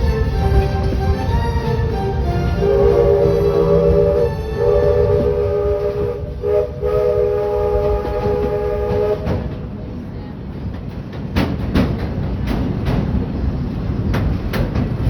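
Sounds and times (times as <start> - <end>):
steam locomotive whistle: 0.0 - 9.6
moving train rumble: 0.0 - 15.0
wheels clicking over rail joints: 7.7 - 15.0.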